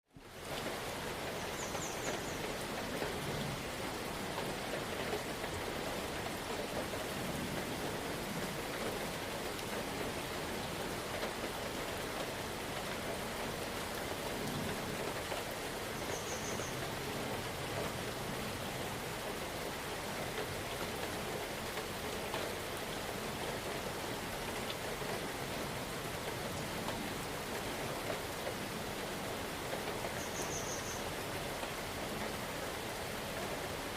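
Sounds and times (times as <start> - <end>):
steady rain hiss: 0.1 - 33.9
faint high chirp: 30.2 - 31.0.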